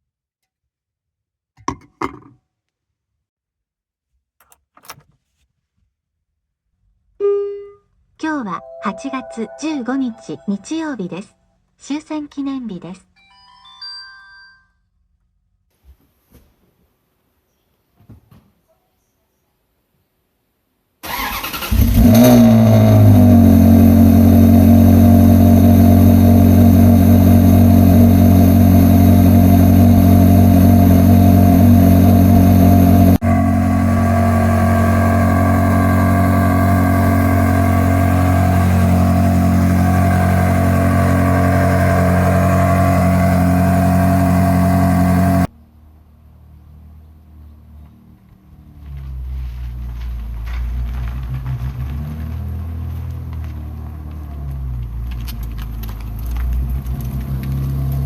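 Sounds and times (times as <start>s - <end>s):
car engine starting and revving: 21.0s - 45.5s, 48.9s - 58.0s
car engine idling: 21.2s - 45.5s.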